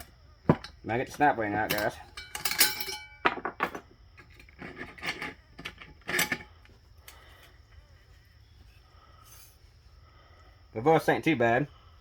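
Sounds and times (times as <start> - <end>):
hand tool scraping metal: 4.2 - 6.7, 8.7 - 9.6.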